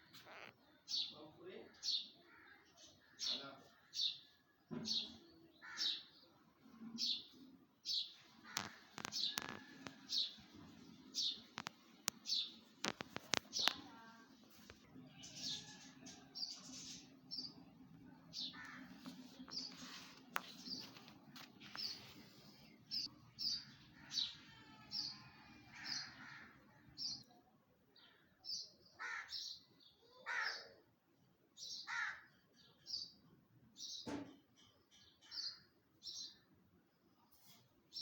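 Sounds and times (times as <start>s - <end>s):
harsh bird calls: 0.0s - 14.1s, 15.0s - 27.2s, 28.0s - 30.8s, 31.6s - 33.1s
birds chirping: 0.0s - 27.4s.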